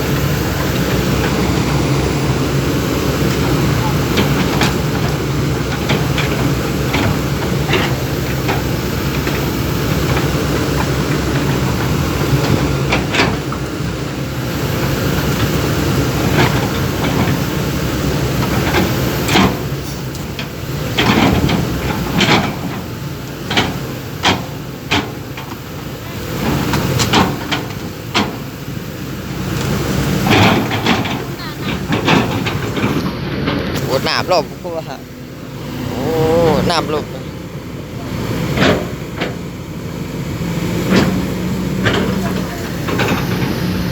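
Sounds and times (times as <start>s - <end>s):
backhoe engine running: 0.0s - 43.9s
sharp knocks and clunks: 18.4s - 25.6s, 26.4s - 28.5s, 29.6s - 35.0s.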